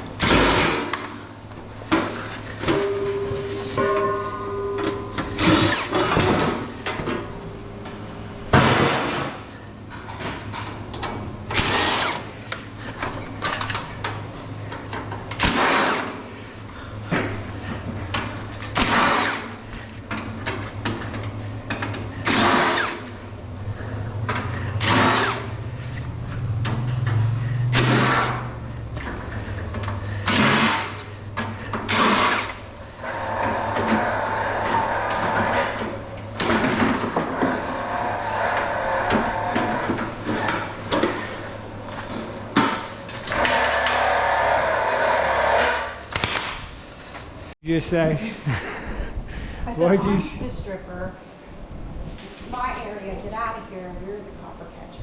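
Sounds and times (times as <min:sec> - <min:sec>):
steady low hum: 0:00.0 - 0:55.0
power drill running in short bursts: 0:11.5 - 0:12.3, 0:22.2 - 0:23.1, 0:24.8 - 0:25.5, 0:31.9 - 0:35.8.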